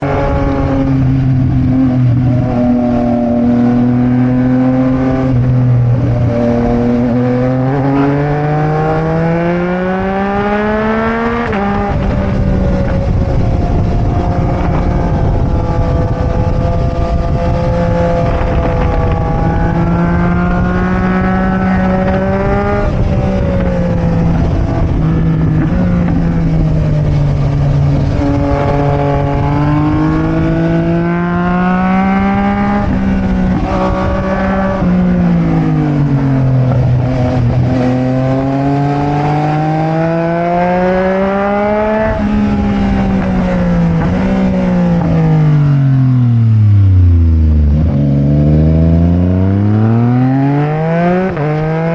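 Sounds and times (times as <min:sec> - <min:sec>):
wind rushing: 0:00.0 - 0:45.7
motorcycle engine accelerating: 0:00.0 - 0:51.9.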